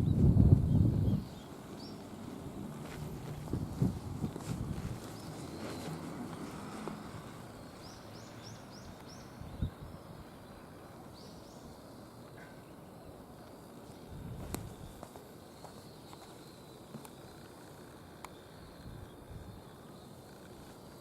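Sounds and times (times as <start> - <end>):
bird chirping: 7.5 - 13.2.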